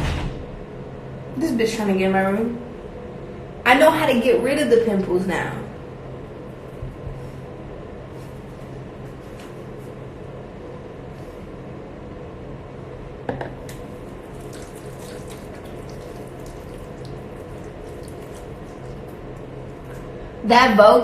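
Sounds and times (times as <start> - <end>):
tap water running into sink: 13.7 - 19.2.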